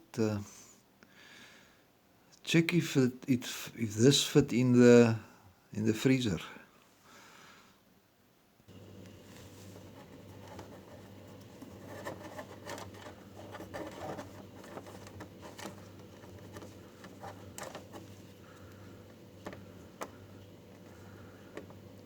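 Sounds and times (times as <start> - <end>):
low steady hum: 8.6 - 22.0.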